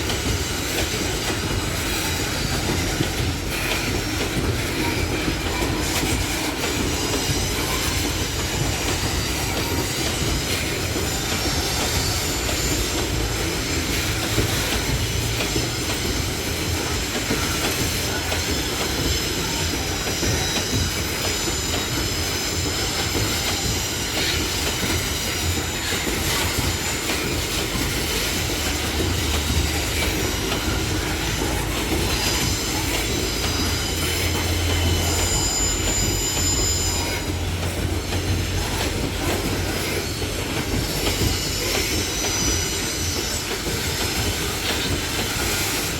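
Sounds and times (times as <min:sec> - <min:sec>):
train wheels rumbling on rail: 0:00.0 - 0:45.9
high-pitched wheel squeal: 0:31.2 - 0:37.7.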